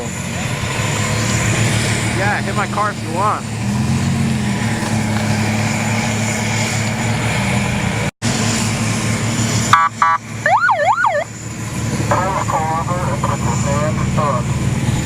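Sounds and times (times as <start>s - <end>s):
low engine drone: 0.0s - 15.0s
car alarm siren wailing: 9.7s - 11.3s.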